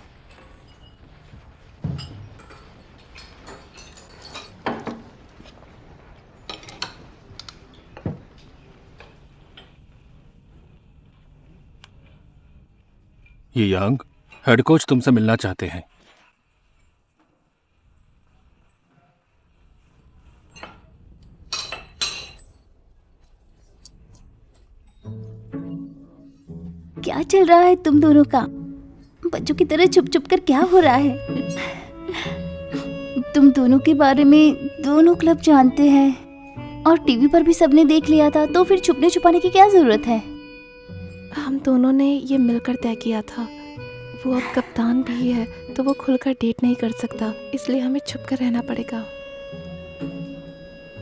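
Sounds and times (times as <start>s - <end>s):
hard objects clinking: 0.0s - 5.1s.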